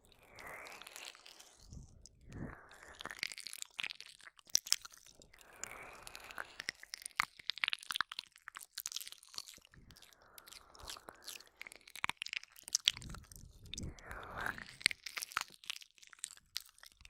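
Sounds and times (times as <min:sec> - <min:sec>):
soft breathing: 0:00.0 - 0:03.2, 0:09.7 - 0:11.9, 0:12.8 - 0:14.9
wet mouth licking and kissing: 0:00.3 - 0:05.2, 0:06.0 - 0:17.0.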